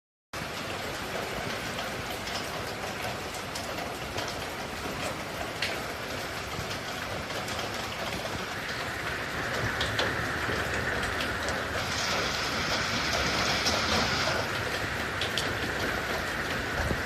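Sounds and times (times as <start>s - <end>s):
heavy rain: 0.4s - 17.0s.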